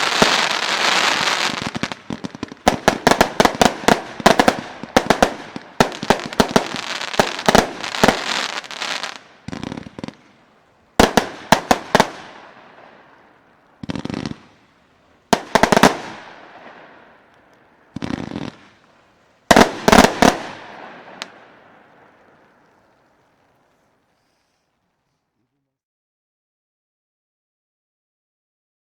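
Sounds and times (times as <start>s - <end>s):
firework loud sharp bangs: 0.0s - 10.3s, 11.0s - 14.6s, 15.3s - 17.3s, 19.5s - 22.5s
fireworks crackling: 0.0s - 24.8s.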